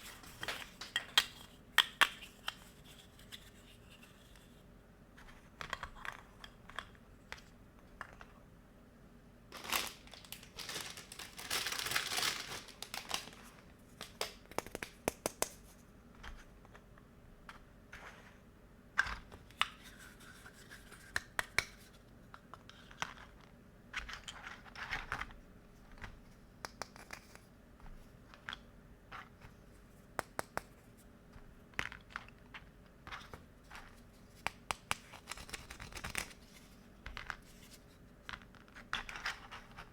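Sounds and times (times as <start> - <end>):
packaging tearing and crinkling: 9.6 - 14.3.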